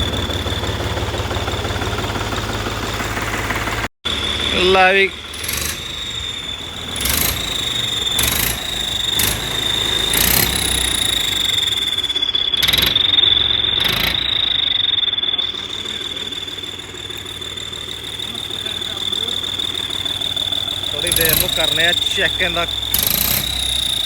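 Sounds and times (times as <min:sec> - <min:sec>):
high-pitched exhaust whistle: 0:00.0 - 0:24.0
tractor engine rumble: 0:00.0 - 0:24.0
short sharp bursts: 0:15.6 - 0:24.0.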